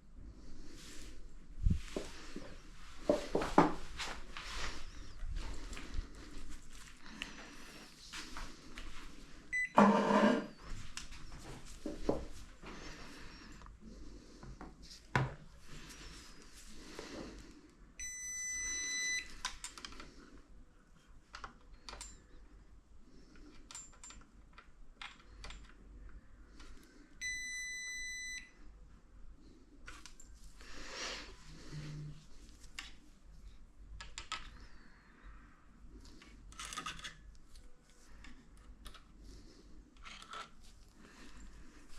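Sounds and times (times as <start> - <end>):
light clicks and handling noises: 19.3 - 20.4, 29.8 - 30.6, 35.9 - 41.9.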